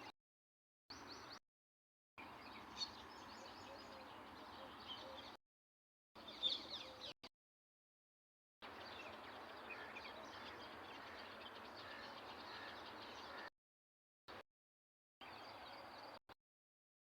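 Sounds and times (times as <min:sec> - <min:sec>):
small birds chirping: 0:02.2 - 0:05.4, 0:06.2 - 0:07.2.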